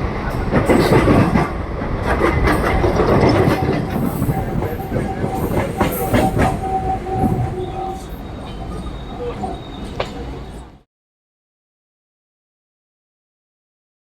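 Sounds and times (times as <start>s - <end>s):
train cars knocking and rattling: 0.0s - 10.8s
train wheels clacking over joints: 0.2s - 10.7s
high wheel squeal: 2.6s - 10.8s.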